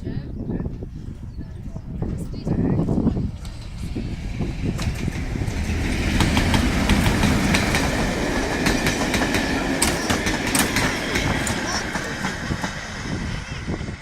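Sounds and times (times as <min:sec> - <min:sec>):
train wheels clattering on rails: 0:03.2 - 0:14.0.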